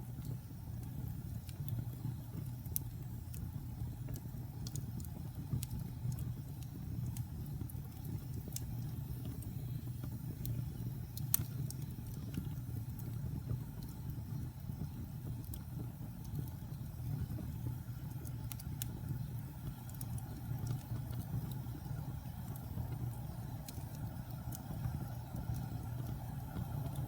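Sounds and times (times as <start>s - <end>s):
fire crackling and popping: 0.0s - 27.0s
low rumble of fire: 0.0s - 27.0s.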